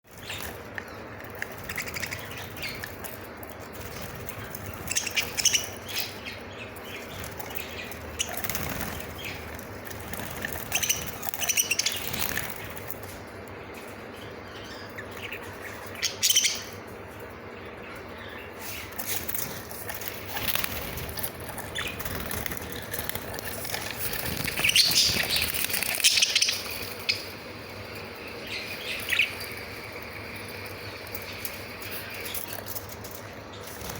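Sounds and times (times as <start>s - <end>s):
wings flapping: 0.1s - 13.3s, 18.7s - 27.5s, 29.0s - 33.9s
budgerigars chirping: 1.4s - 12.9s, 14.2s - 16.9s, 17.7s - 32.6s.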